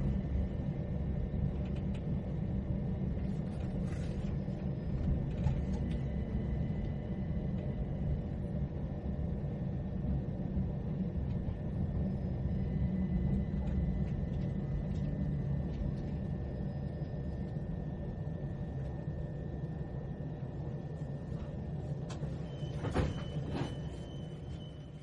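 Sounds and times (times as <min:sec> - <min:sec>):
faint steady whine: 0:00.0 - 0:25.0
train carriage rumble: 0:00.0 - 0:25.0.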